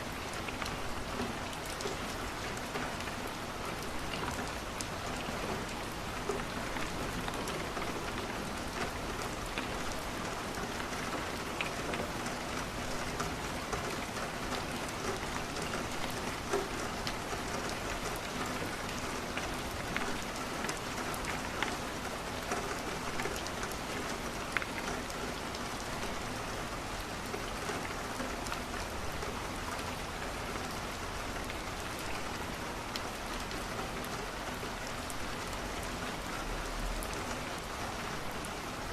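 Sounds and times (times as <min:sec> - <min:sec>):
rain on a window: 0:00.0 - 0:38.9.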